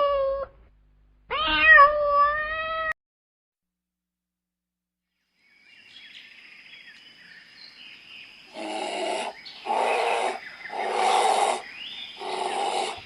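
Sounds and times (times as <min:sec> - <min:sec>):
animal raspy calls: 0:08.5 - 0:13.0.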